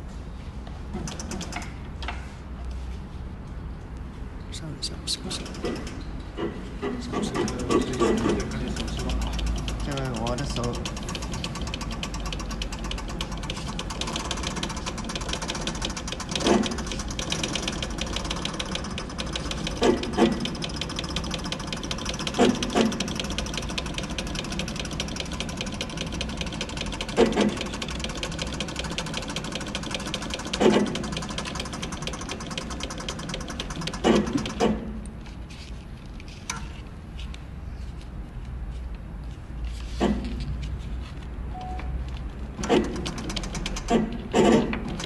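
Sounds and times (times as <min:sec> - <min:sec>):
industrial sewing machine running: 0:07.1 - 0:34.8, 0:42.6 - 0:45.0.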